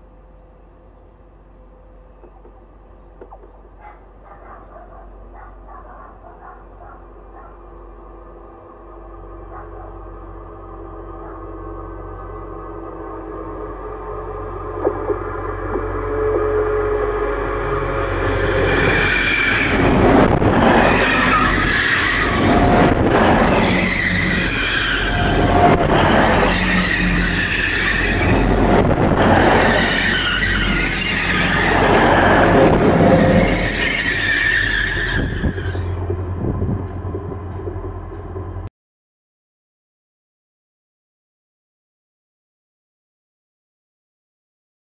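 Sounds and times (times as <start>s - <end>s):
train wheels rumbling and clattering: 1.6s - 38.7s
high squealing tones: 14.8s - 36.2s.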